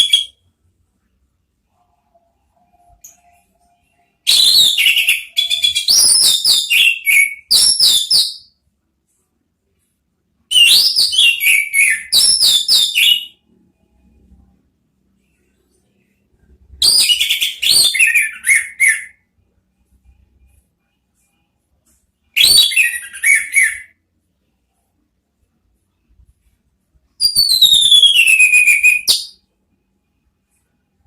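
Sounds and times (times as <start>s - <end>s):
thrush singing whistled notes: 22.3s - 24.0s, 27.2s - 29.4s.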